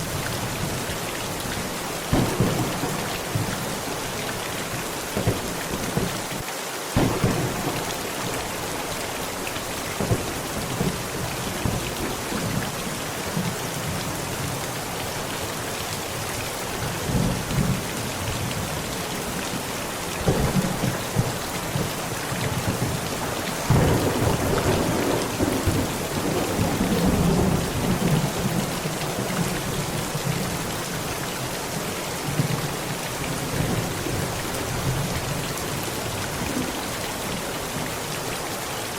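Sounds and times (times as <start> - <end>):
heavy rain on a tent: 0.0 - 38.9
thunder rumbling: 2.0 - 6.4, 7.0 - 12.6, 20.2 - 30.6.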